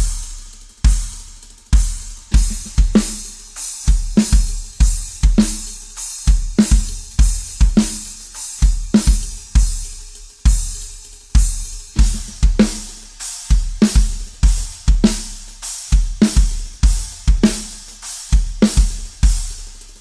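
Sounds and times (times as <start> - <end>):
cymbals: 0.0 - 20.0
snare drum: 0.0 - 20.0
kick drum: 1.8 - 3.0, 6.3 - 7.8, 11.4 - 12.6, 16.0 - 17.5.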